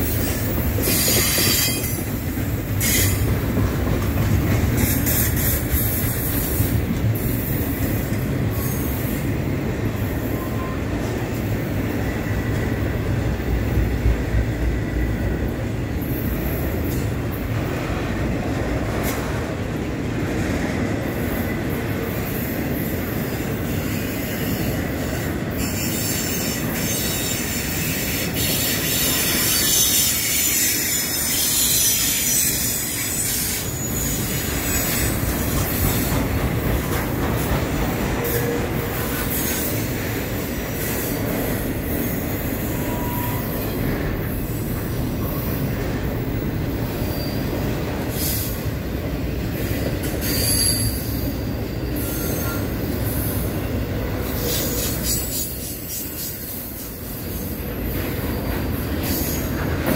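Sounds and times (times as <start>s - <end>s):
rumble of train wheels on rail: 0.0s - 59.9s
high-pitched wheel squeal: 42.8s - 43.8s, 50.2s - 51.3s.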